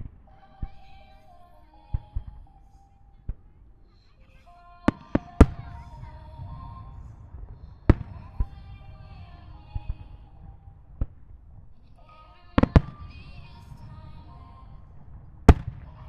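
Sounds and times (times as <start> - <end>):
music: 0.0 - 16.0
low rumble: 2.0 - 12.0
firework shells bursting: 4.7 - 16.0.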